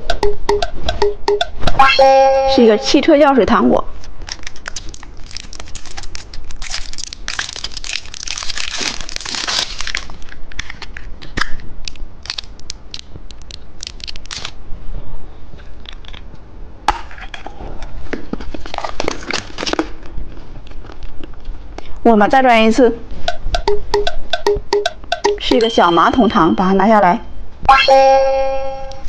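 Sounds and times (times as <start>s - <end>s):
plastic packaging crinkling: 4.0s - 14.6s, 18.5s - 20.1s
sharp clicks and snaps: 4.1s - 8.6s, 10.2s - 14.6s.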